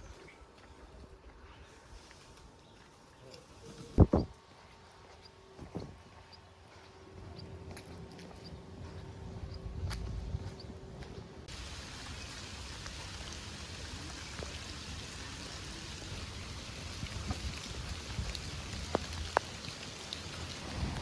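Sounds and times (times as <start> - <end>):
steady rain hiss: 11.4 - 21.0
water drips clicking: 16.8 - 21.0.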